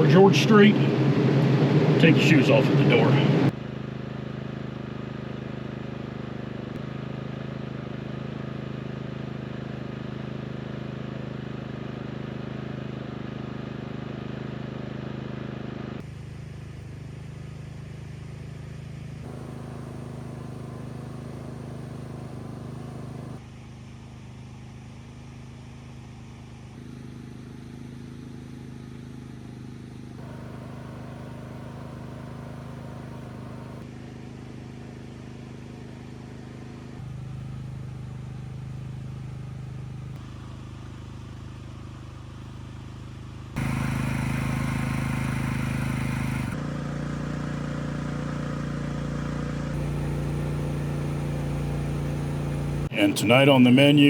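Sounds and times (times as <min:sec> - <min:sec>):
generator engine humming: 0:19.3 - 0:23.4, 0:30.2 - 0:33.9, 0:43.6 - 0:54.0.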